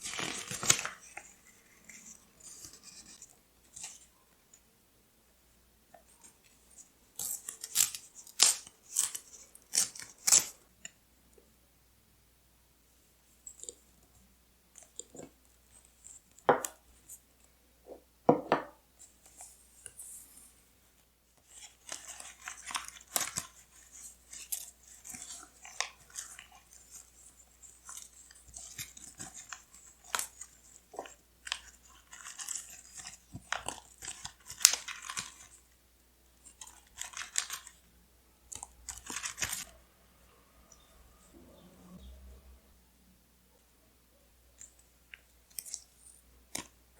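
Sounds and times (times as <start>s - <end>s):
paper tearing: 0.0s - 1.0s, 7.2s - 10.5s, 38.8s - 39.8s.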